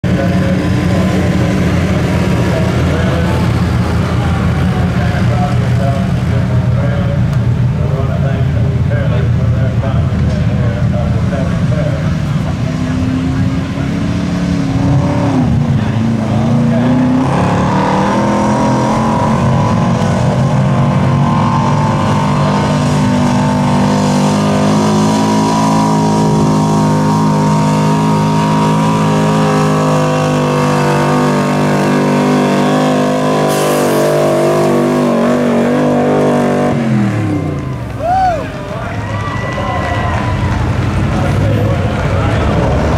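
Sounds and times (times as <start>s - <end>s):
truck engine at high revs: 0.0s - 42.9s.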